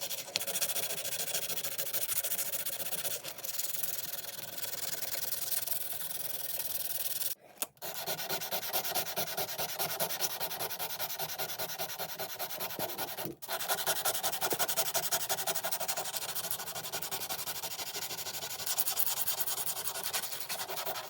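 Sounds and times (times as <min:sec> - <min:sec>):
hand sanding rubbing strokes: 0:05.8 - 0:21.0.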